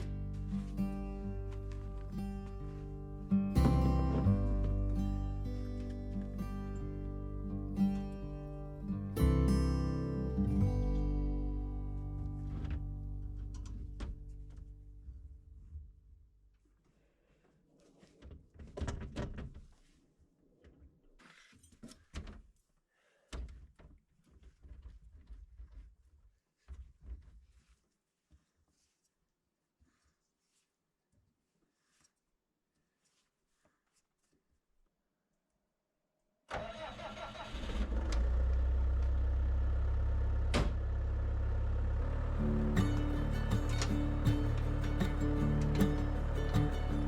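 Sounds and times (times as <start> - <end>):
engine cranking and idling: 36.5 - 47.0.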